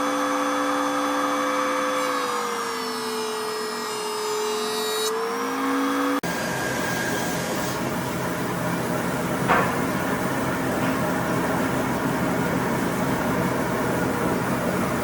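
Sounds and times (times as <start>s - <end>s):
power tool motor whining: 0.0s - 7.8s
mechanical noise with low hum: 6.2s - 15.0s.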